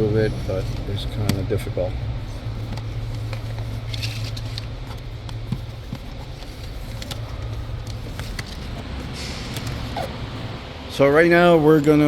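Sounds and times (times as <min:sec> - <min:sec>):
steady low hum: 0:00.0 - 0:12.0
hands clicking and rustling wiring: 0:02.6 - 0:09.9.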